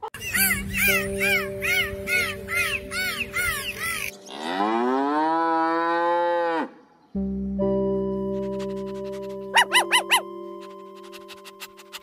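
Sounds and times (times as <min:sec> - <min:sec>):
high chirps: 0:00.2 - 0:04.4, 0:08.2 - 0:12.0
held musical chords: 0:00.3 - 0:04.7, 0:07.2 - 0:12.0
cow mooing: 0:04.3 - 0:06.8.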